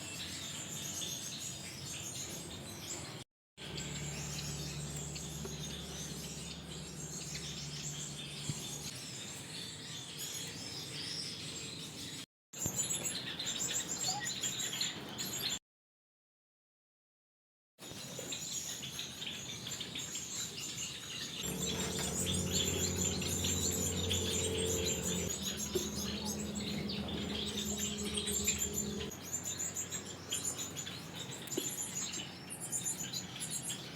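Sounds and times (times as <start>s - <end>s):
low steady hum: 21.4s - 29.1s
finches chirping: 21.5s - 29.1s.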